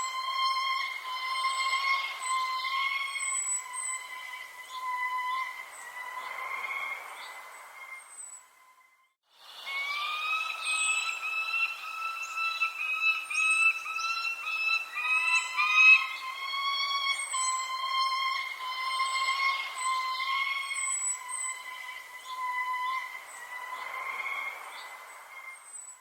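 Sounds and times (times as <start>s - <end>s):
high falling bird chirps: 0.0s - 8.9s, 9.5s - 26.0s
whistle-like pulsing bird tone: 0.0s - 26.0s.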